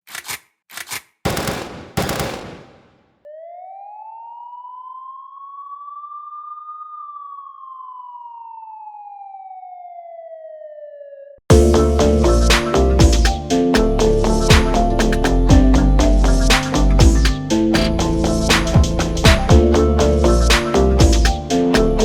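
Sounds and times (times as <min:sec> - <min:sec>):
siren rising and falling: 0:03.2 - 0:11.4.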